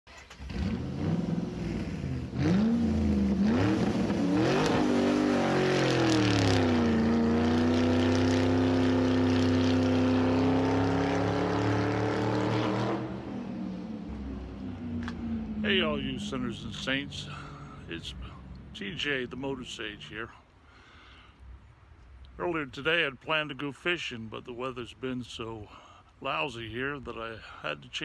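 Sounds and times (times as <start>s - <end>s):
engine revving: 0.1s - 19.8s.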